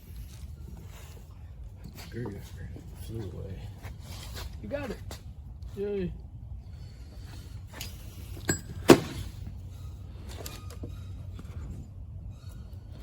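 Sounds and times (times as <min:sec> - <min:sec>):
hand tools clinking on metal: 0:07.8 - 0:09.2.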